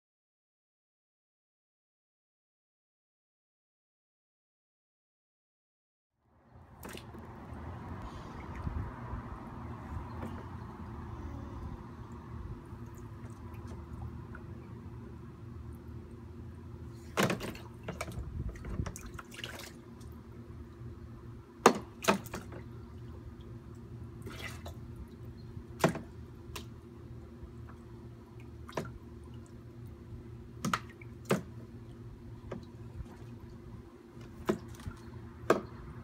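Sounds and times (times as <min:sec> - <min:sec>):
steady low hum: 0:06.2 - 0:36.0
water splashing and dripping: 0:06.7 - 0:10.8, 0:12.1 - 0:14.8, 0:17.0 - 0:20.9, 0:21.7 - 0:26.8.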